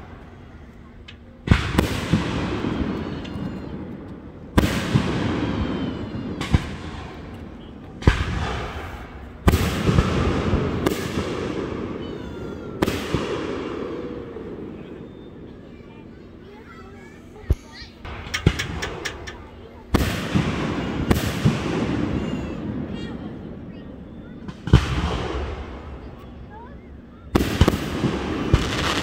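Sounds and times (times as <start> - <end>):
fireworks booming: 0.0 - 29.0.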